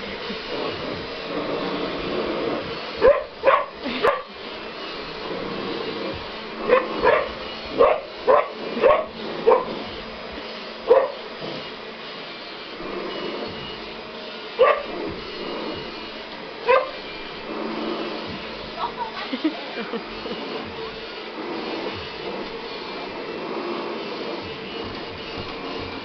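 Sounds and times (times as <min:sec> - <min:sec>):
vacuum cleaner humming: 0:00.0 - 0:26.0
puppy barking: 0:03.0 - 0:04.3, 0:06.7 - 0:09.8, 0:10.9 - 0:11.2, 0:14.6 - 0:14.9, 0:16.7 - 0:17.0.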